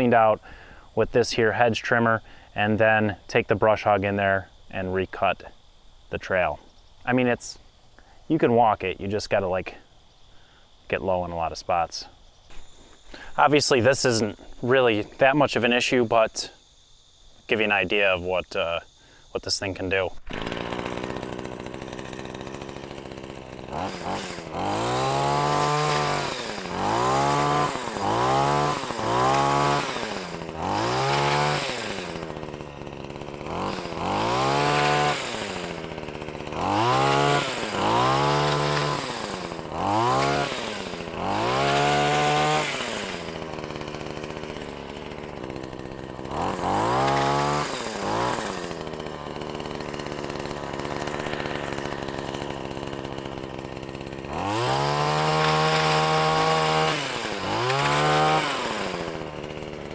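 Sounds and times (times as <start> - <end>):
hedge trimmer engine revving: 19.6 - 59.9.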